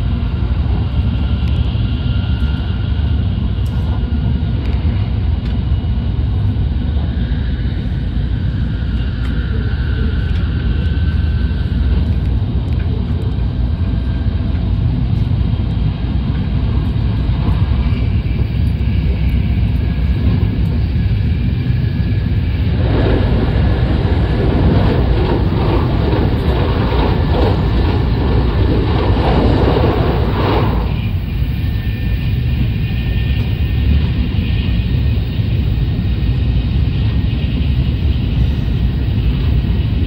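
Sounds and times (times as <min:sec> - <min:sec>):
train cabin rumble: 0:00.0 - 0:40.0
train rushing over bridge: 0:00.0 - 0:40.0.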